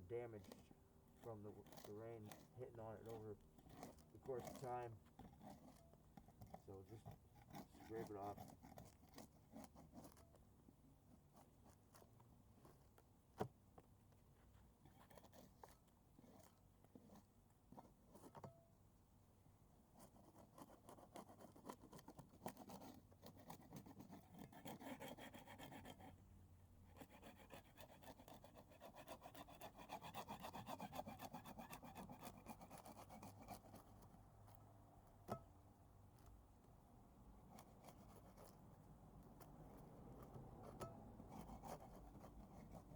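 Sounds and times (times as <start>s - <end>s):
scraper scraping paint off wood: 0.2s - 10.5s, 27.0s - 34.6s.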